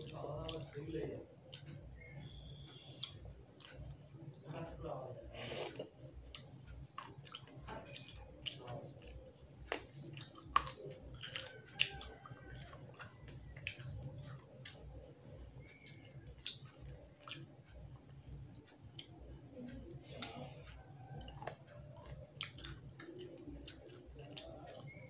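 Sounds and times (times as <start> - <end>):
chewing and mouth sounds: 5.6 - 25.0.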